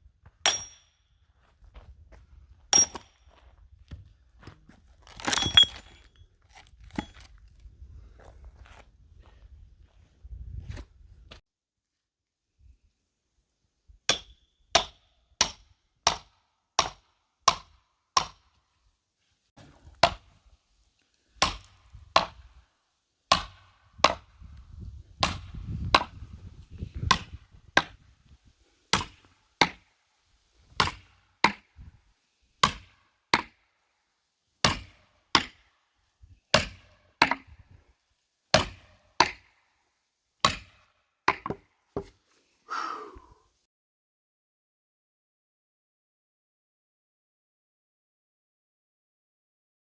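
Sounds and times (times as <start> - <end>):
hammer striking steel axe head: 0.5 - 0.9, 2.8 - 3.1.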